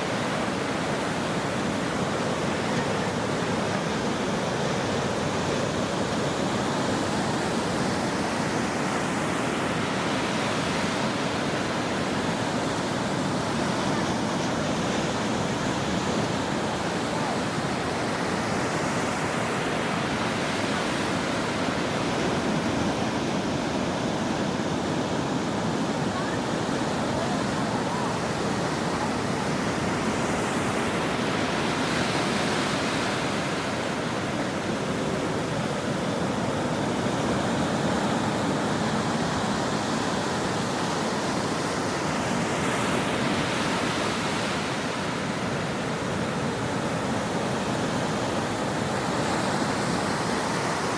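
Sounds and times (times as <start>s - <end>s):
ocean waves breaking on shore: 0.0s - 50.9s.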